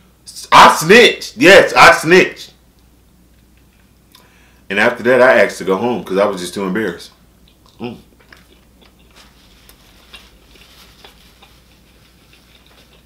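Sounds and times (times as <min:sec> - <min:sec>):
person chewing: 0:07.1 - 0:13.0.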